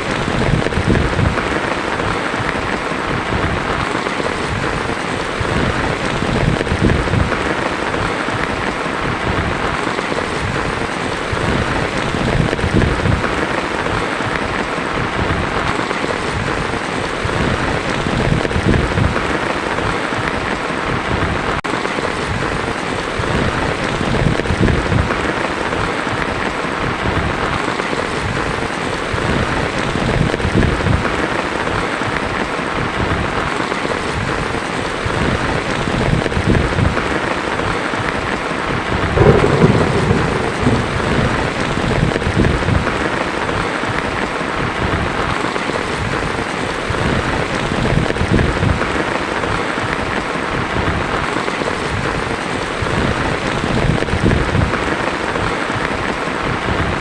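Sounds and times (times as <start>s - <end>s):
thunder rumbling: 0.0s - 31.4s, 34.9s - 55.0s
heavy rain on a tin roof: 0.0s - 57.0s.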